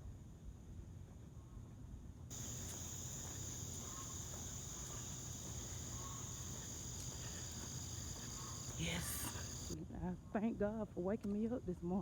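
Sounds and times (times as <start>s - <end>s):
insects trilling: 2.3s - 9.8s.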